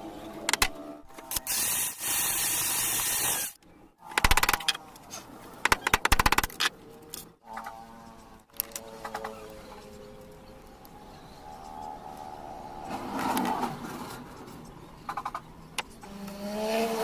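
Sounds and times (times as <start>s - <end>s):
hand tool hissing: 1.3s - 3.6s
rapid clicking: 5.6s - 6.7s.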